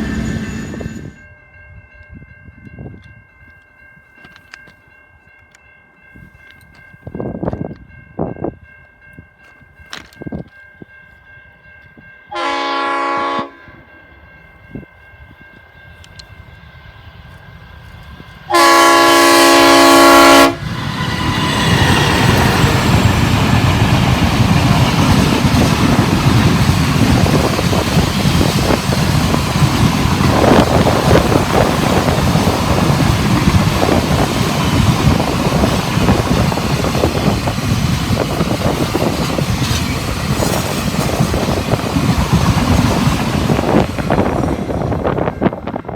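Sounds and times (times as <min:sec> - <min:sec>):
freight train rumbling past: 0:00.0 - 0:02.9, 0:11.3 - 0:45.9
diesel locomotive horn: 0:12.3 - 0:13.9, 0:18.5 - 0:22.6.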